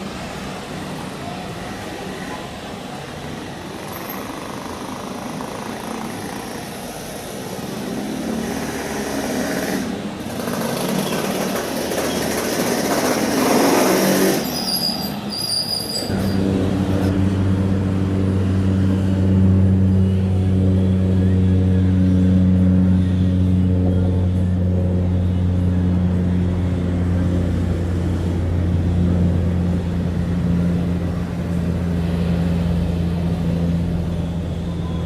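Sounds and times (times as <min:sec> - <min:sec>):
turboprop engine hum: 0:16.1 - 0:35.0
light aircraft passing: 0:16.4 - 0:35.0.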